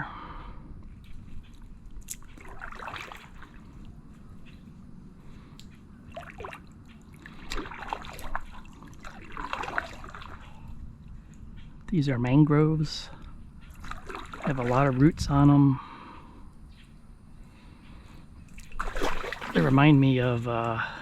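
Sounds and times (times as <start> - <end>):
water dripping off paddle blade: 1.0 - 4.7, 5.3 - 11.7, 13.1 - 15.6, 18.4 - 20.8
kayak paddle dipping into water: 2.0 - 4.0, 6.1 - 10.7, 13.7 - 15.3, 18.5 - 20.0.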